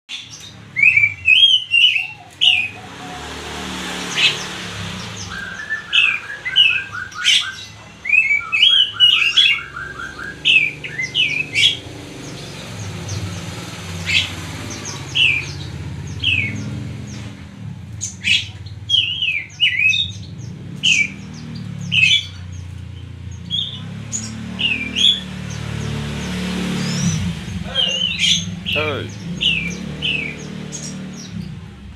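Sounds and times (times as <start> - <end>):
bird singing whistled notes: 0.1 - 2.9, 4.2 - 13.3, 23.4 - 31.5.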